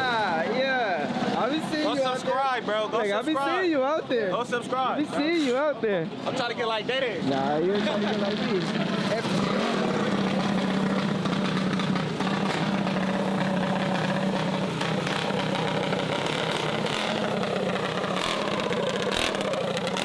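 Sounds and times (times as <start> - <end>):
outdoor crowd hubbub: 0.0 - 20.0
small engine idling: 8.0 - 20.0.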